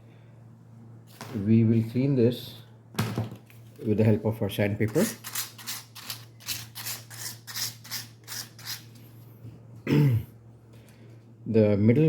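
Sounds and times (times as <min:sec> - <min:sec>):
sandpaper scrubbing metal mesh: 0:05.1 - 0:08.9.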